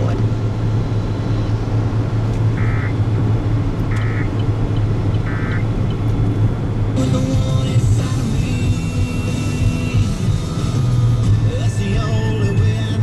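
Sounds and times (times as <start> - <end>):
low vehicle engine hum: 0.0 - 13.0
warbling data bursts: 2.6 - 3.0, 3.9 - 4.4, 5.1 - 5.8.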